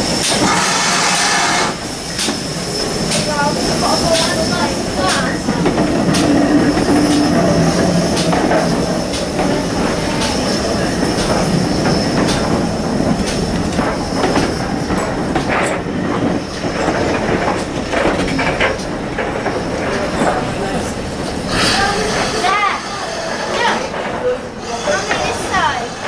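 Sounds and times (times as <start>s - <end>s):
train coaches rumbling past: 0.0s - 26.0s
wheels clicking over rail joints: 3.0s - 22.5s
high wheel squeal: 21.5s - 23.9s, 24.6s - 26.0s.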